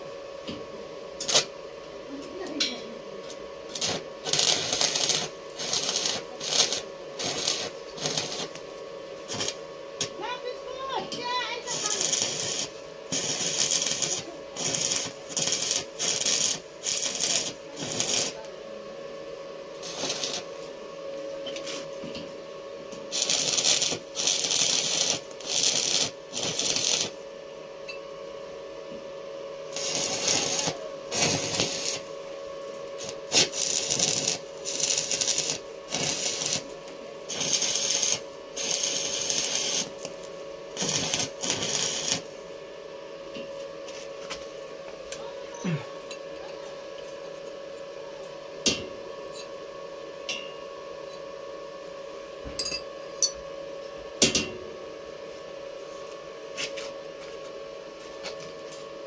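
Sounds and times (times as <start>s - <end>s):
steady hum: 0.0s - 59.0s
electric arc welding: 1.2s - 1.5s, 3.6s - 18.5s, 19.8s - 20.8s, 23.1s - 27.3s, 29.7s - 42.5s.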